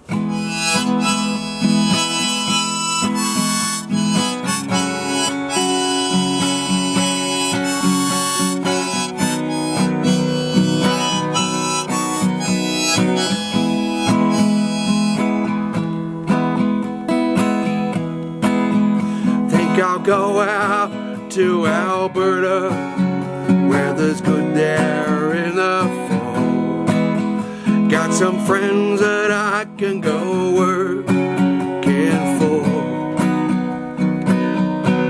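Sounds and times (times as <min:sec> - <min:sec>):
harmonica melody: 0:00.0 - 0:16.7
strummed acoustic guitar: 0:00.0 - 0:35.0.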